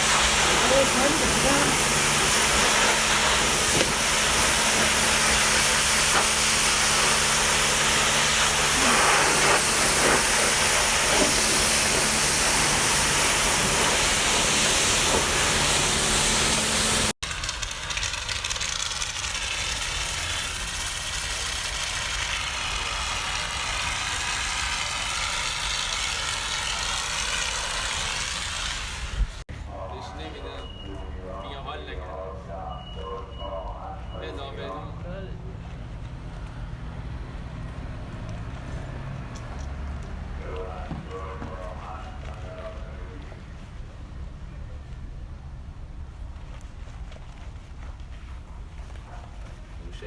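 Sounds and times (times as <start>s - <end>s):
spray equipment hissing: 0.0s - 17.2s
low motor hum: 0.0s - 29.4s.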